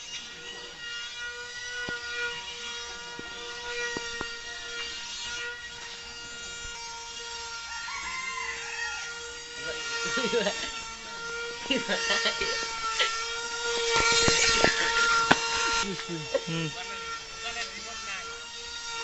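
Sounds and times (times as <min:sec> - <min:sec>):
electric motor whine: 0:00.0 - 0:19.0.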